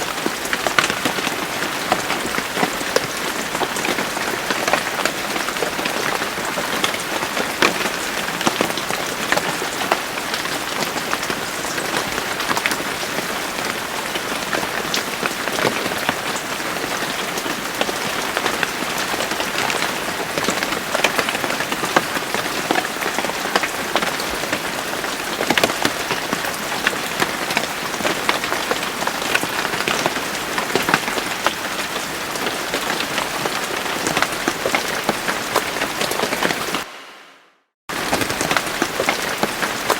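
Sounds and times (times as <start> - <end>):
rain drops pattering: 0.0 - 36.9, 37.9 - 39.9.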